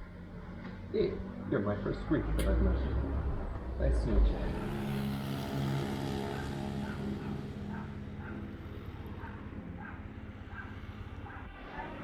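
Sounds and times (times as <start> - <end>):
engine running: 1.9 - 12.0
dog barking: 6.3 - 12.0.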